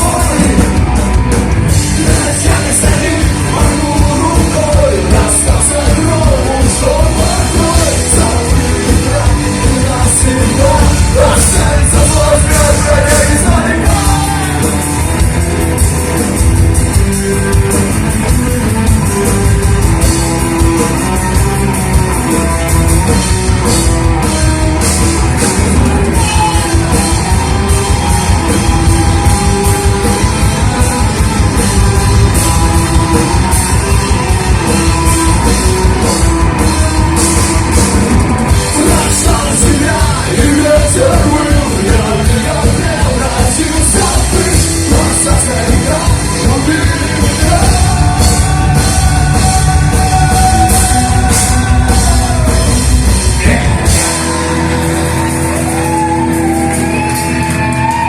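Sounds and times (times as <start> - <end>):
loud rock music: 0.0 - 58.0
person singing: 1.7 - 14.9, 38.5 - 54.9.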